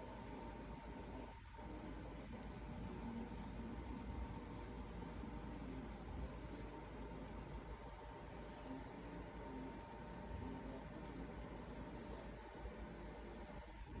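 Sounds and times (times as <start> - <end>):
sugar glider clicking: 8.6 - 14.0.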